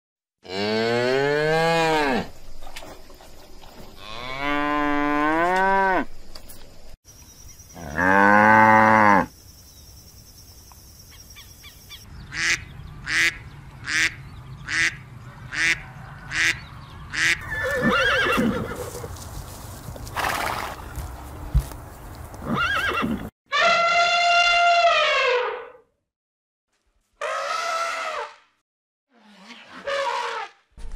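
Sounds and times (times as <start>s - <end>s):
cow mooing: 0.4s - 2.3s, 4.0s - 6.1s, 7.8s - 9.3s
duck quacking: 12.3s - 17.4s.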